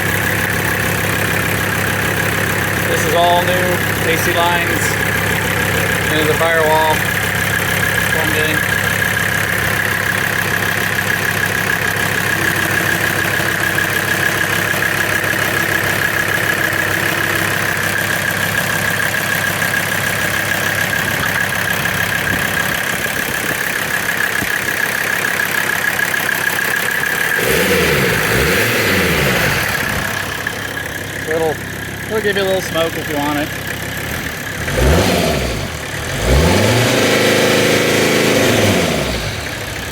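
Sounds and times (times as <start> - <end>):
engine revving: 0.0 - 18.2, 27.1 - 39.9
diesel engine idling: 0.0 - 39.9.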